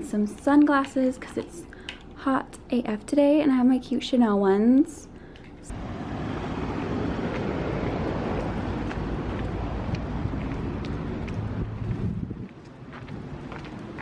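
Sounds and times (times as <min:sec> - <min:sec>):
outdoor rumbling noise: 0:05.4 - 0:14.0.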